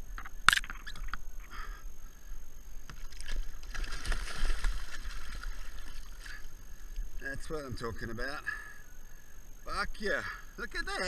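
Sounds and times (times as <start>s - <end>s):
water sloshing against hull: 2.8s - 7.2s.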